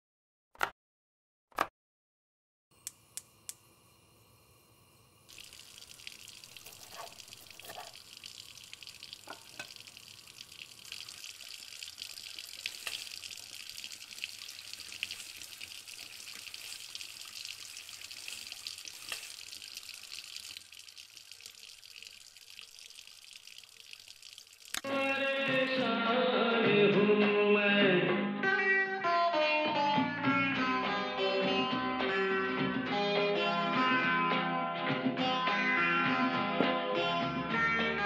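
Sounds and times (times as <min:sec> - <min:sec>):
food sizzling in a frying pan: 0:05.3 - 0:23.6.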